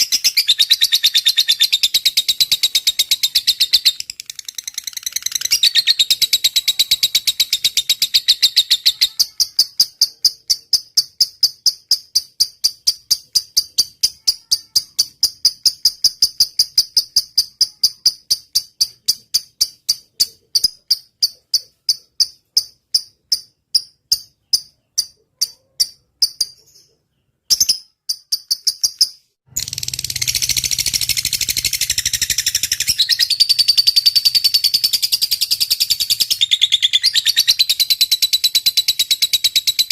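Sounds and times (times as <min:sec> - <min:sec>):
bird chatter: 0:00.0 - 0:11.3
bird ticking chirps: 0:00.0 - 0:39.9.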